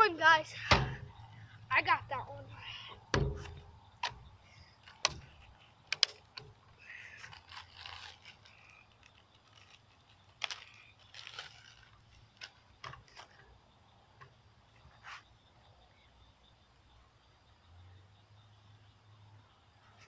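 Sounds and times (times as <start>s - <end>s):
sharp clicks: 3.4s - 6.5s.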